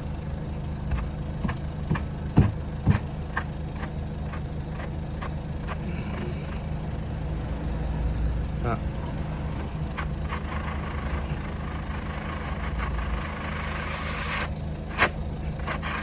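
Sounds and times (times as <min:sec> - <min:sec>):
car engine idling: 0:00.0 - 0:16.0
short sharp engine knocks: 0:00.9 - 0:03.9.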